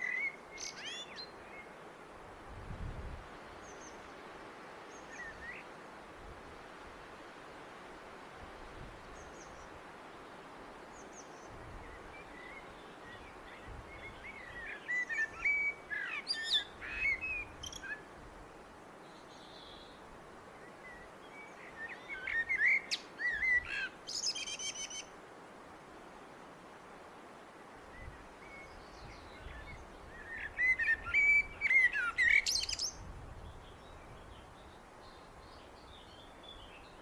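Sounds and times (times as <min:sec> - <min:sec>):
blackbird singing: 0:00.0 - 0:01.4, 0:12.2 - 0:18.0, 0:20.9 - 0:25.1, 0:28.5 - 0:33.0
faint background hiss: 0:00.0 - 0:37.0.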